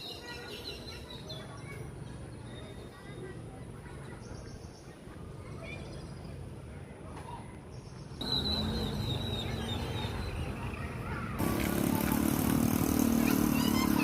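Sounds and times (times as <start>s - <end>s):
steady traffic noise: 0.0s - 14.0s
bird chirping: 7.8s - 11.2s
vehicle engine hum: 8.2s - 14.0s.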